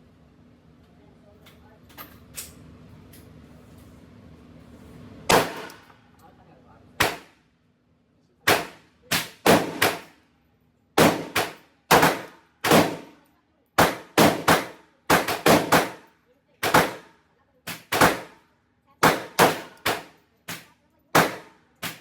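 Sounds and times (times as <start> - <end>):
pistol shots with ringing echo: 5.3 - 5.9, 7.0 - 7.3, 8.4 - 10.1, 11.0 - 13.2, 13.8 - 17.1, 17.7 - 18.4, 19.0 - 22.0.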